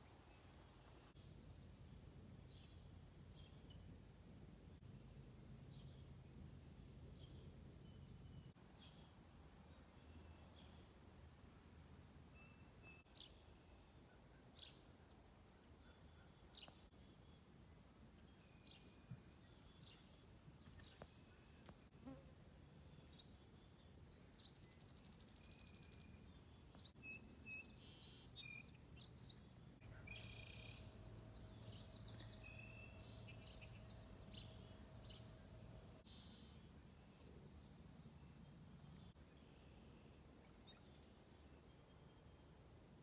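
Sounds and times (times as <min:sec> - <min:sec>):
faint steady hum: 0:28.2 - 0:43.0.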